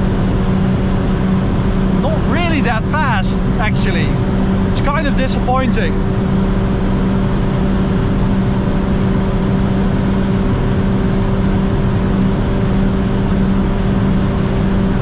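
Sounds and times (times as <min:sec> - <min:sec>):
car engine droning at high revs: 0:00.0 - 0:15.0
road noise: 0:01.2 - 0:06.4.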